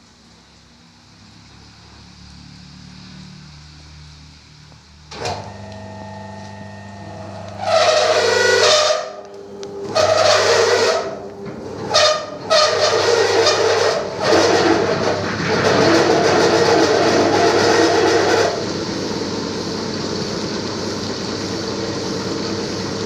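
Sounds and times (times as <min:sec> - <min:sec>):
low motor hum: 0:01.3 - 0:23.0
rushing whining bursts: 0:05.1 - 0:19.9.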